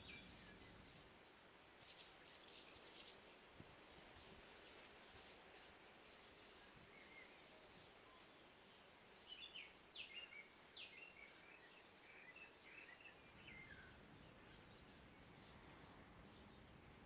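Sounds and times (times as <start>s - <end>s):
background hiss: 0.0s - 17.0s
songbird whistling song: 9.2s - 15.6s.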